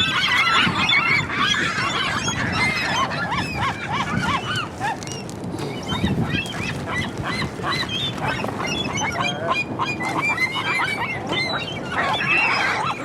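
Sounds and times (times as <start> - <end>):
seagulls calling: 0.0 - 13.0.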